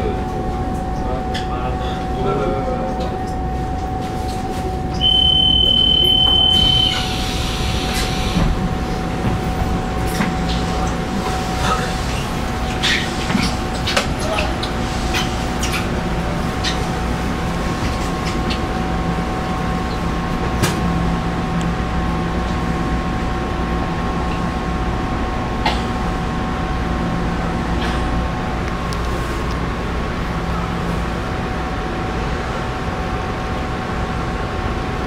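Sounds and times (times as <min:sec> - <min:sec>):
train cabin rumble: 0:00.0 - 0:35.0
constant high tones: 0:05.0 - 0:07.1.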